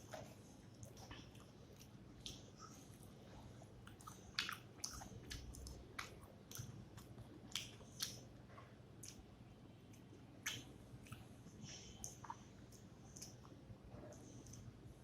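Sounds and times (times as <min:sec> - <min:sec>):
person chewing: 0:03.8 - 0:08.3
mouth clicks and smacks: 0:03.9 - 0:08.3, 0:09.9 - 0:11.3.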